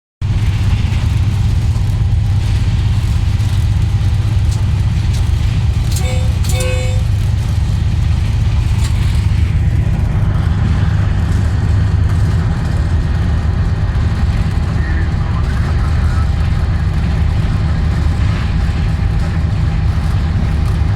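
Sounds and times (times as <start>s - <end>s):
train rumbling at speed: 0.2s - 20.9s
short pitched tones: 5.9s - 7.4s.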